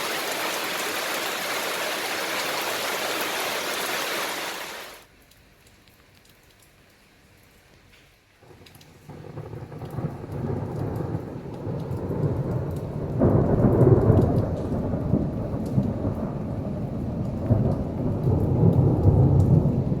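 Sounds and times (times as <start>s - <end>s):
heavy rain: 0.0s - 5.4s, 8.2s - 20.0s
rolling thunder: 9.0s - 20.0s.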